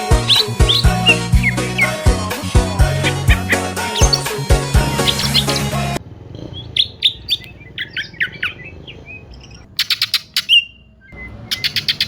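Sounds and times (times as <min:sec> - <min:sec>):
bird rattling trill: 0:00.0 - 0:02.0, 0:03.3 - 0:05.7
bird singing sharp chirps: 0:00.0 - 0:02.0, 0:03.3 - 0:04.4, 0:05.0 - 0:05.8, 0:06.4 - 0:12.0.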